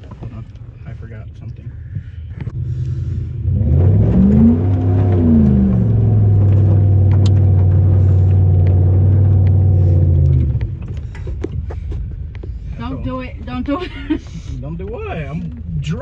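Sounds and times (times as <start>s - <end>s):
engine exhaust revving and droning: 2.3s - 13.2s.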